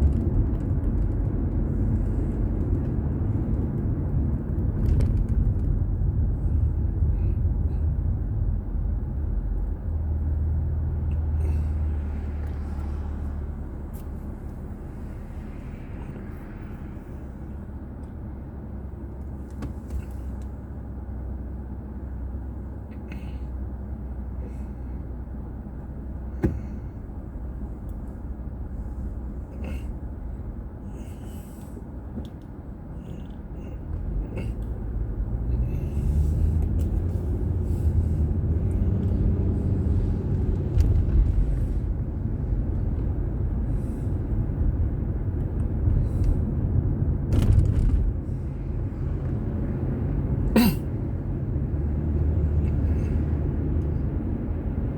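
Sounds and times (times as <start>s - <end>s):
car road and engine rumble: 0.0s - 54.9s.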